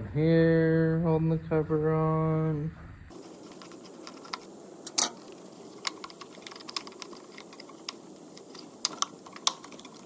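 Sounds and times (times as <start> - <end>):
tools clicking on hard plastic: 3.6 - 10.0.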